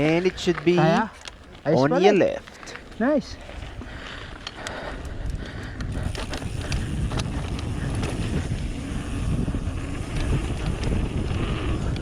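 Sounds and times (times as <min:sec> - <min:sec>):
bike clicks and rattles: 0:00.0 - 0:12.0
bike tyre rumble: 0:00.0 - 0:12.0
wind buffeting microphone: 0:03.1 - 0:12.0.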